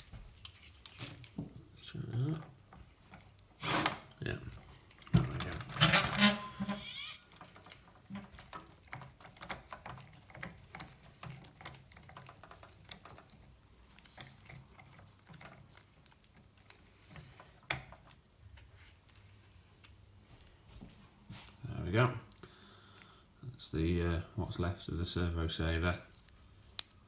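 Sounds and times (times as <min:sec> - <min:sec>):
small plastic parts clicking: 0:26.1 - 0:27.0.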